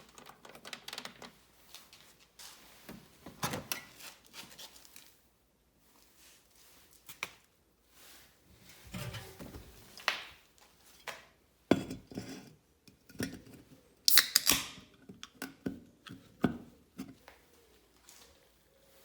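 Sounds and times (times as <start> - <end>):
bright scraping: 8.6 - 9.9.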